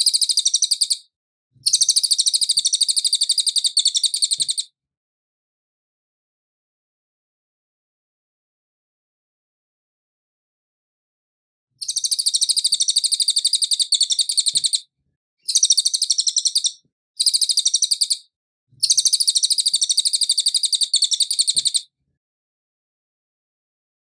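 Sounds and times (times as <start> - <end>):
bird chattering: 0.0 - 1.0, 1.7 - 4.6, 11.8 - 14.8, 15.5 - 18.2, 18.8 - 21.8.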